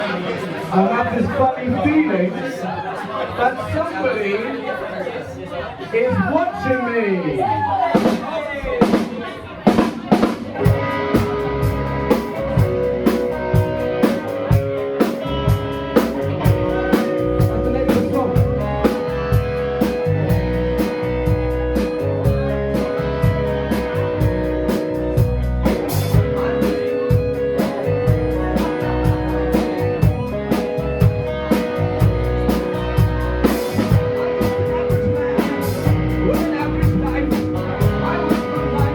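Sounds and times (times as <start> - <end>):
guitar: 7.4 - 38.9
drum kit beat: 7.9 - 38.9
bass line: 10.5 - 38.9.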